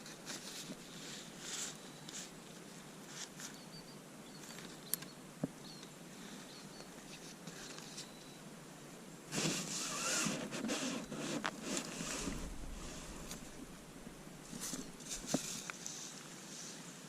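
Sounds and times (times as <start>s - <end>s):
leaves rustling: 0.0s - 3.8s, 9.2s - 17.0s
faint high bird chirps: 1.7s - 2.3s, 3.4s - 8.5s.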